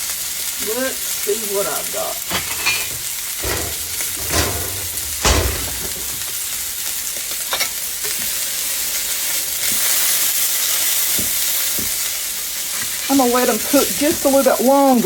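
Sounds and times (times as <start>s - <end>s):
meat sizzling in a skillet: 0.0s - 15.0s
cookware knocks: 2.3s - 6.4s.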